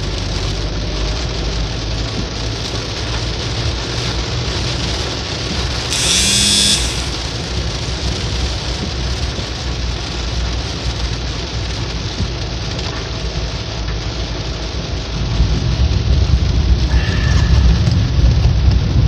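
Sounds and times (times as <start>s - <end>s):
steady rain falling: 0.0s - 5.9s, 7.1s - 19.0s
brief high-pitched squeal: 5.9s - 7.2s.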